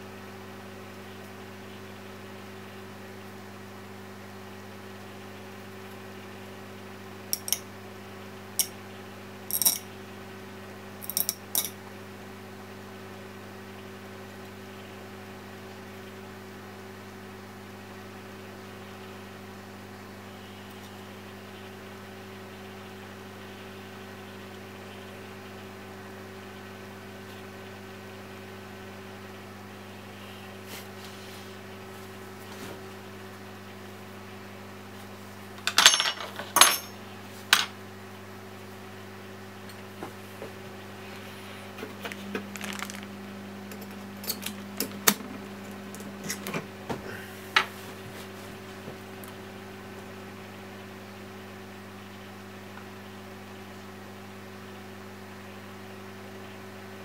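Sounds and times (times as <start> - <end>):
low electrical hum: 0.0 - 57.0
metal parts clinking on hard surface: 9.5 - 9.8, 11.0 - 11.7, 35.6 - 37.0.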